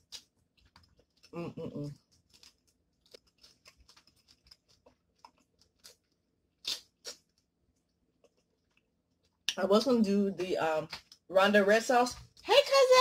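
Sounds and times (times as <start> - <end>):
chewing with wet crunches: 2.0 - 9.6.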